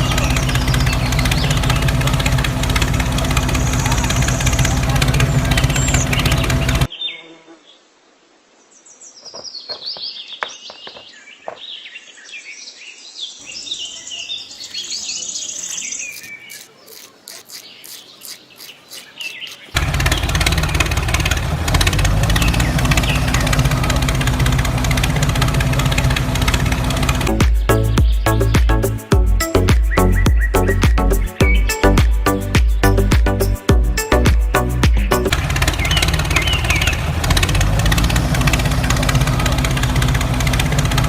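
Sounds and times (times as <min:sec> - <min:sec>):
loud steady hum: 0:00.0 - 0:06.9, 0:19.8 - 0:41.0
birds chirping: 0:00.0 - 0:07.8, 0:08.7 - 0:41.0.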